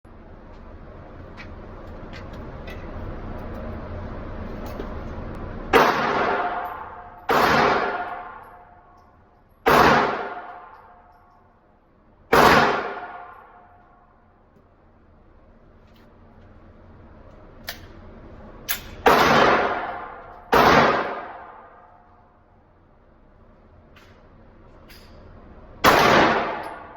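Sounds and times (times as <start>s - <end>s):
gunshots ringing: 5.7s - 8.5s, 9.7s - 10.7s, 12.3s - 13.5s, 19.0s - 21.8s, 25.8s - 26.9s.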